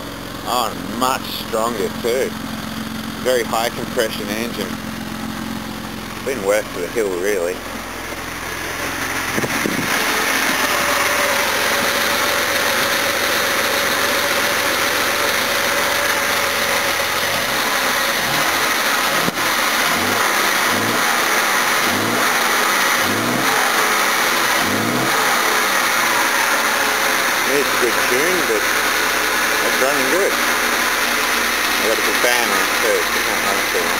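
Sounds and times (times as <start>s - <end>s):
car engine running: 0.0s - 33.9s.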